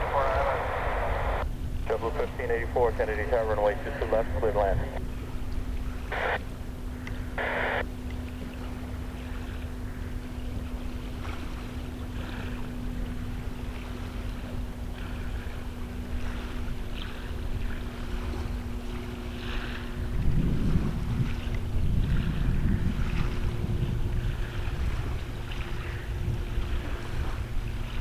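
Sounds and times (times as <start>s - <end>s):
hissy static bursts: 0.0s - 1.4s, 6.1s - 6.4s, 7.4s - 7.8s
constant hum: 0.0s - 28.0s
wind buffeting microphone: 19.4s - 28.0s.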